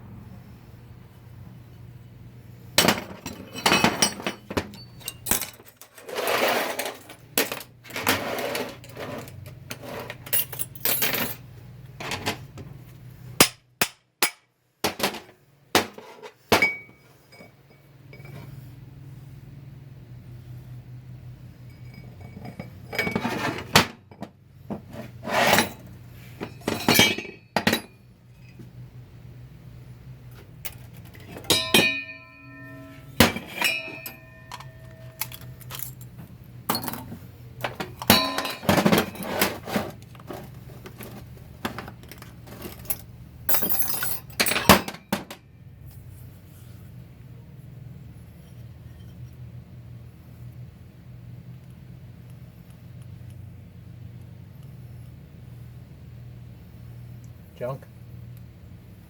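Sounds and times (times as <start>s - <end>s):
metal tools and parts clanking: 2.8s - 11.4s, 14.9s - 18.4s, 21.7s - 23.9s, 25.2s - 28.6s, 30.6s - 45.4s
low hum: 27.7s - 39.2s.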